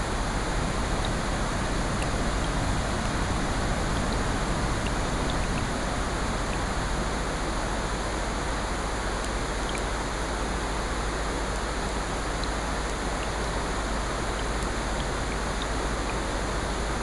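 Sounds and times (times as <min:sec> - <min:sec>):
ocean surf: 0:00.0 - 0:12.1
rain: 0:00.0 - 0:17.0.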